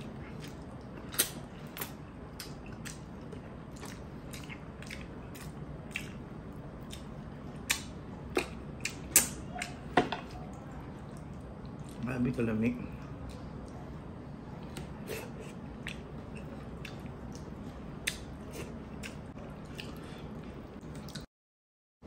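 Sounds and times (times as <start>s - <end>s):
wet chewing mouth smacks: 14.6s - 20.0s.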